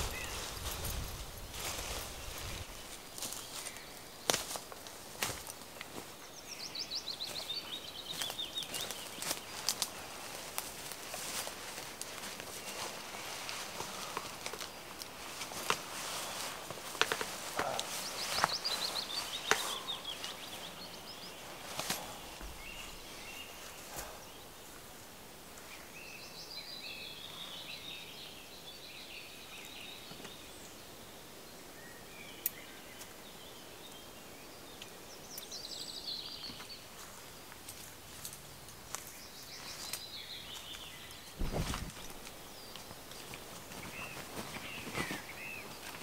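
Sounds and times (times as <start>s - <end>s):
low rustle: 0.0s - 3.8s
songbirds singing: 0.0s - 46.0s.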